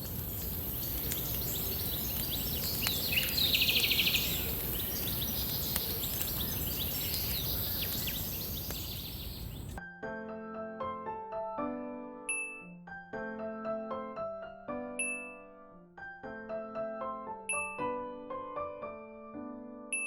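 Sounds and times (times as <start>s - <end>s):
bird rapid trill: 0.0s - 9.8s
birds chirping: 0.0s - 9.8s
outdoor background hiss: 0.0s - 9.8s.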